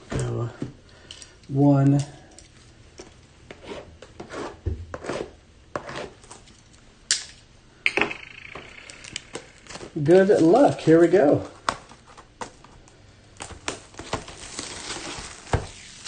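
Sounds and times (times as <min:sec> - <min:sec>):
cardboard and wrapping rustling: 0:09.7 - 0:16.0
squeaky tearing scrape: 0:14.4 - 0:16.0.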